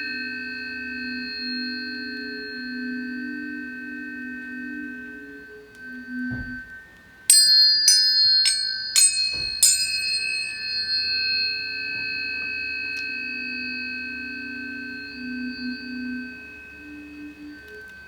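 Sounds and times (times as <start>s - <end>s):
tuning forks ringing: 0.0s - 18.0s
metallic bell-like strikes: 7.3s - 14.3s.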